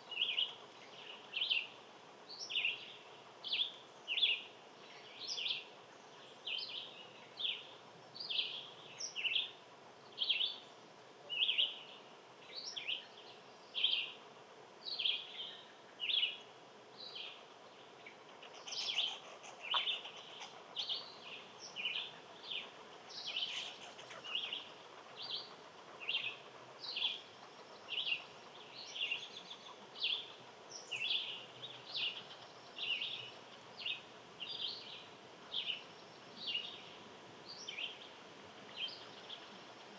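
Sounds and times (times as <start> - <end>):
faint outdoor hiss: 0.0 - 39.9
small bird chirping: 18.4 - 36.9.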